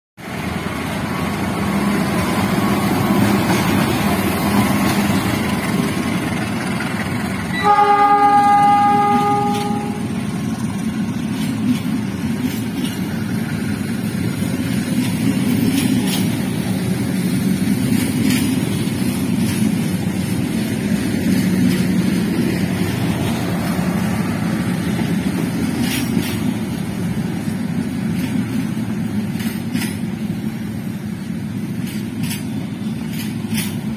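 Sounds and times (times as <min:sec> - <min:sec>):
train rumbling past: 0:00.2 - 0:33.9
train horn: 0:07.5 - 0:10.3.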